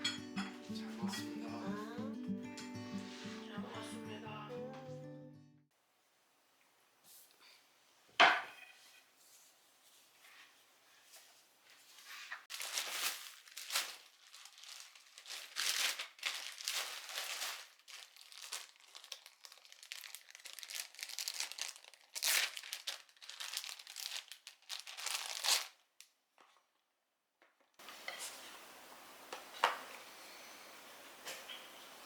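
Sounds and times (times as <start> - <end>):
packaging crinkling: 12.5 - 26.6.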